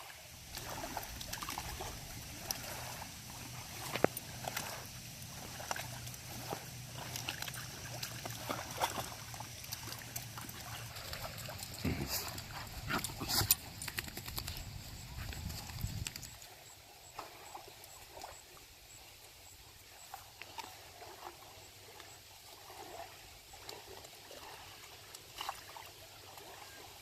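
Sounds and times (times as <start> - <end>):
low steady hum: 0.0 - 16.4.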